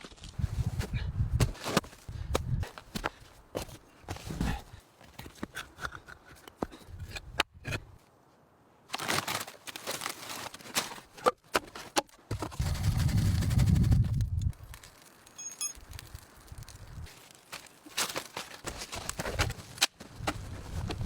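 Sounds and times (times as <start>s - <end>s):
rustling and handling noises: 8.9s - 12.8s, 14.5s - 21.0s.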